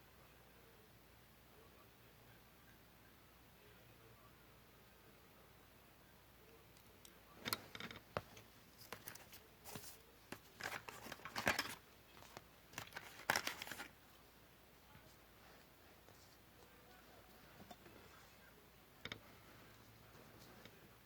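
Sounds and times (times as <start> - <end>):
paper rustling and crinkling: 8.7 - 14.0.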